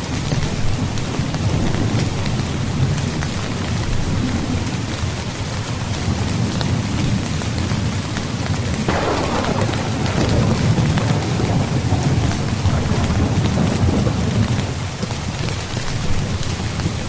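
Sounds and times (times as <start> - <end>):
heavy rain on a tent: 0.0 - 17.0.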